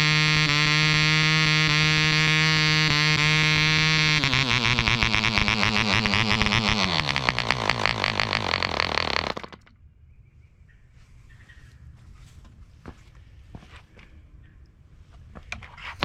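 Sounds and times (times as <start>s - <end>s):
model airplane engine running: 0.0s - 9.7s.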